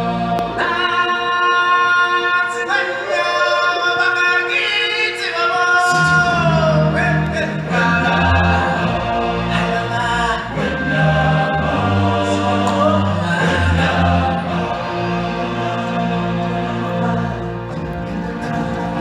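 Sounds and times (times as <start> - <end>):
choir singing long notes: 0.0 - 19.0
low bass accompaniment: 5.9 - 19.0.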